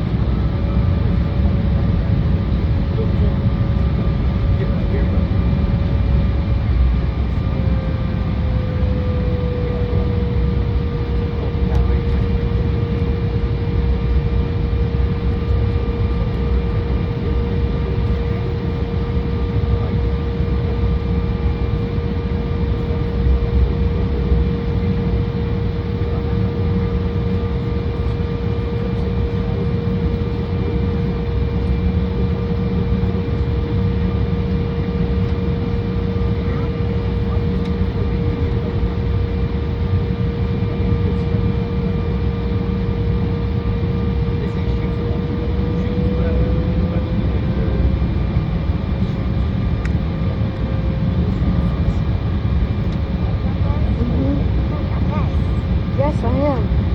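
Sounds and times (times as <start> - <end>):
jet engines whining: 0.0 - 56.9.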